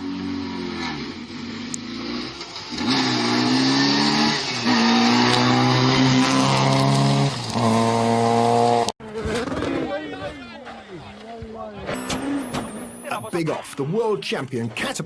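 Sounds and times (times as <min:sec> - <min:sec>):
rally car engine at high revs: 0:00.0 - 0:08.9
tyres on gravel: 0:10.4 - 0:15.0.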